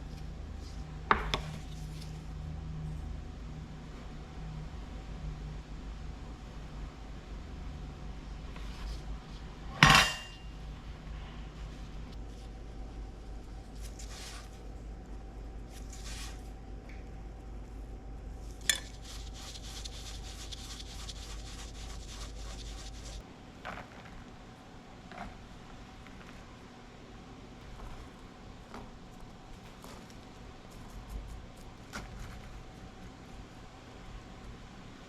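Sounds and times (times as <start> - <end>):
steady hum: 0.0 - 35.0
dishes and utensils clinking: 9.8 - 10.5.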